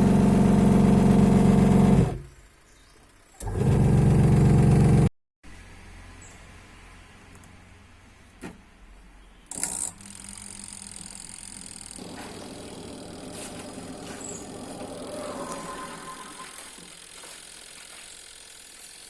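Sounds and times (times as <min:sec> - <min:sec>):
washing machine motor humming: 0:00.0 - 0:02.2, 0:09.9 - 0:19.0.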